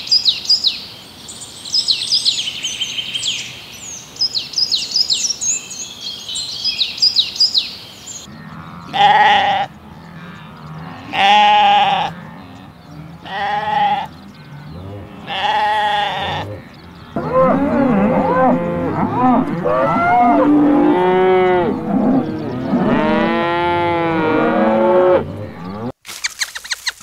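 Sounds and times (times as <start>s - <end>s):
cattle mooing: 8.3s - 25.9s
lamb bleating: 8.8s - 10.3s, 10.9s - 12.2s, 13.2s - 14.1s, 15.1s - 16.7s.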